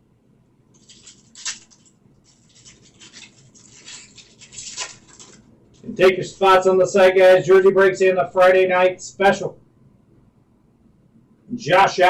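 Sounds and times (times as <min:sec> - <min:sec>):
card snapping: 0:00.8 - 0:02.0
cards scraping and rustling: 0:00.8 - 0:05.5.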